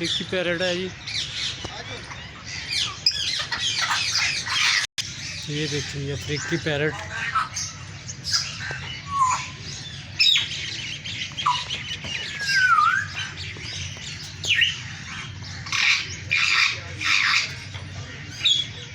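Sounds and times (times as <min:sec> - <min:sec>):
parrots squawking: 0:01.0 - 0:18.8
parrots whistling: 0:06.4 - 0:13.7.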